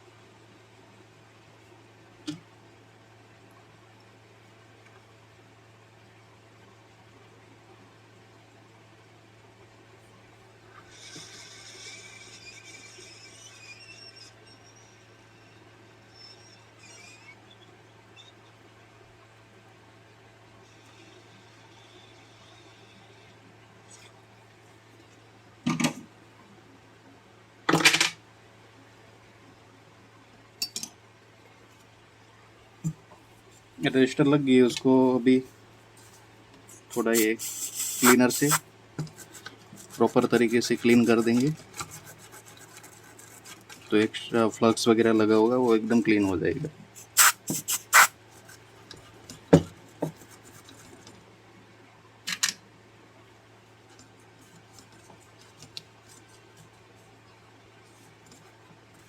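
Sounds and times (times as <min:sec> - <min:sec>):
faint steady hum: 0:00.0 - 0:59.0
cleaner spray bursts: 0:36.9 - 0:38.6, 0:47.0 - 0:48.2.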